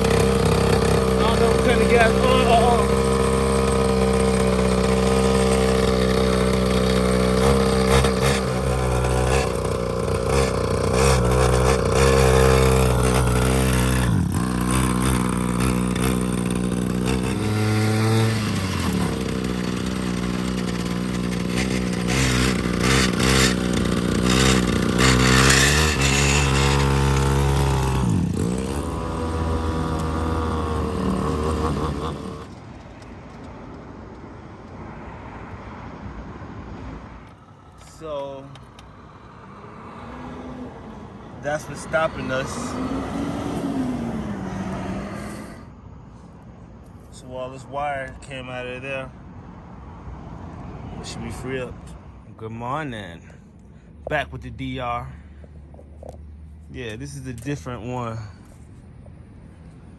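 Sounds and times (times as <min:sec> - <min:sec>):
dirt bike engine revving: 0:00.0 - 0:32.8, 0:41.4 - 0:45.8.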